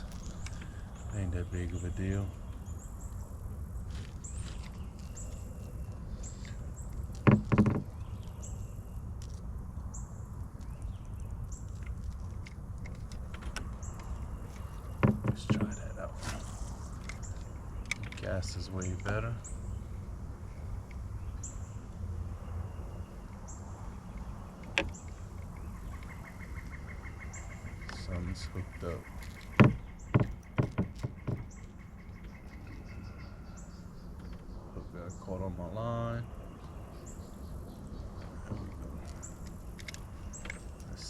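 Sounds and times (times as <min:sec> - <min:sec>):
steady low rumble: 0:00.0 - 0:30.5
hollow knocks on canoe hull: 0:07.2 - 0:08.0, 0:14.9 - 0:15.8, 0:29.3 - 0:31.7.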